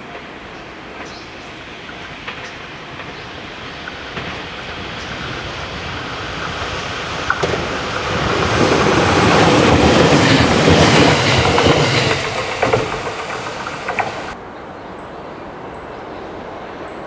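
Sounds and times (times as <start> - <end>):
train wheels rumbling on rail: 0.0 - 14.4
wheel clicks over rail joints: 6.4 - 14.4.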